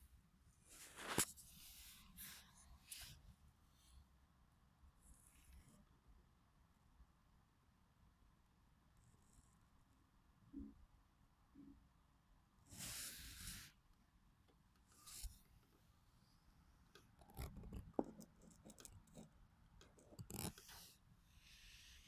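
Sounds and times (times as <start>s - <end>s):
faint rustling and scraping: 0.6s - 4.0s.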